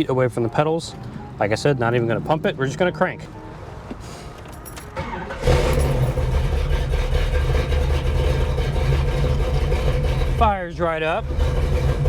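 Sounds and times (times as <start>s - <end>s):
car engine low rumble: 0.0s - 12.0s
engine cranking: 4.4s - 12.0s.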